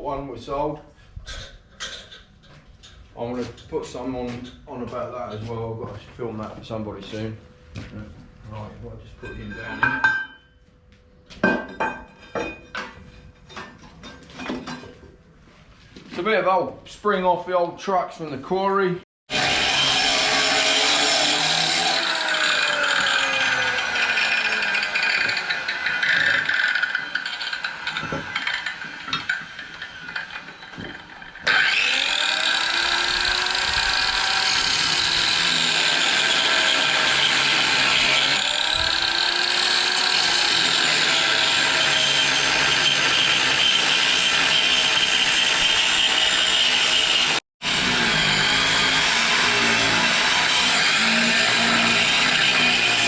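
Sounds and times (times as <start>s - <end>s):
angle grinder cutting steel: 19.3s - 53.0s.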